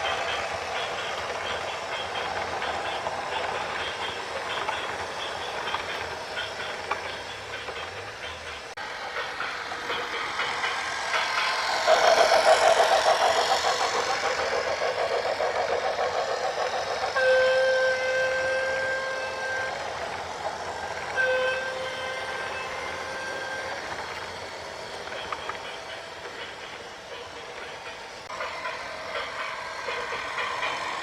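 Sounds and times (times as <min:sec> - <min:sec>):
rhythmic clattering: 0:00.0 - 0:31.0
horn blasts: 0:17.1 - 0:20.0, 0:21.1 - 0:23.8.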